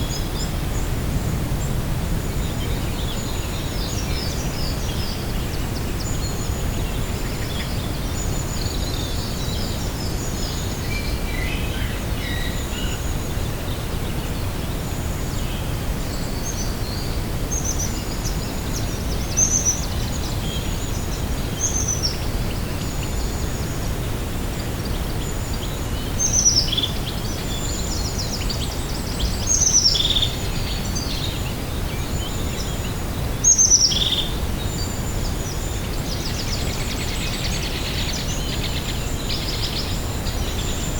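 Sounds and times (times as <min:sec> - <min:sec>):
songbirds chirping and trilling: 0:00.0 - 0:40.9
low background rumble: 0:00.2 - 0:04.8.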